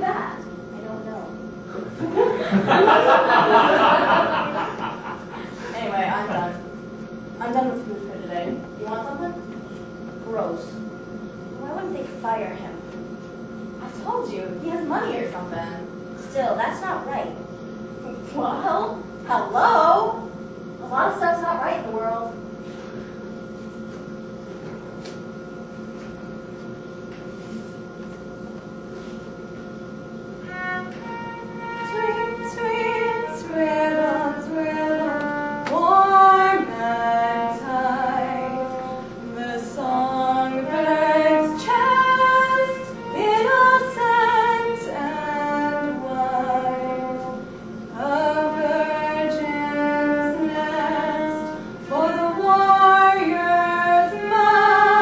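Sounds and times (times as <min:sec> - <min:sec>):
sustained instrumental chord: 0:30.4 - 0:55.0
woman singing classical melody: 0:31.6 - 0:47.4, 0:48.0 - 0:55.0.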